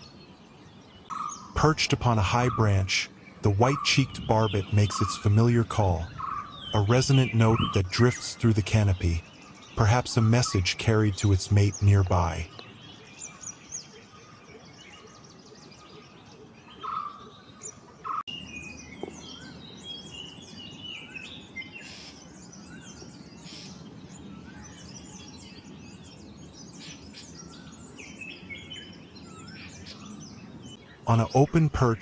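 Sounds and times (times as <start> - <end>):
birds chirping and twittering: 0.0 - 32.0
low resonant bird notes: 0.0 - 32.0.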